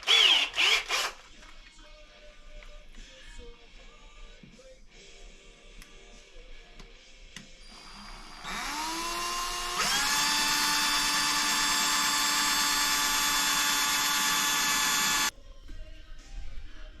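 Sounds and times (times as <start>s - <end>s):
electric drill whine: 0.0s - 1.2s, 7.6s - 15.3s.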